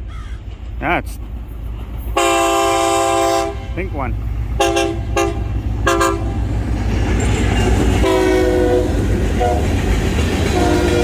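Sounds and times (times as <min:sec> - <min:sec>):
freight train rumbling and clattering: 0:00.0 - 0:11.0
locomotive horn chord: 0:02.2 - 0:04.0, 0:04.6 - 0:06.4, 0:08.0 - 0:09.7, 0:10.5 - 0:11.0.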